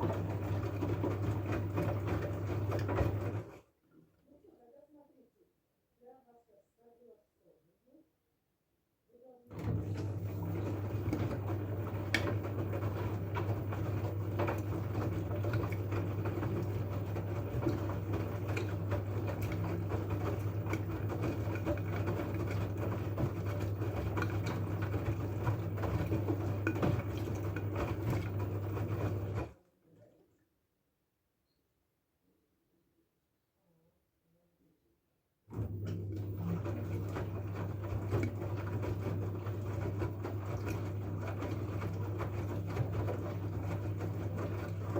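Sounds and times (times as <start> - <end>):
washing machine motor hum: 0.0 - 3.7, 9.5 - 29.6, 35.5 - 44.9.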